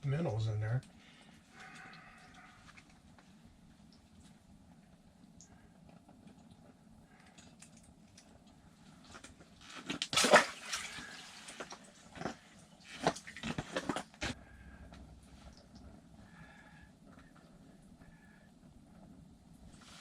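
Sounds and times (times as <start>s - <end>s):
water splashing and sloshing: 9.2s - 14.4s.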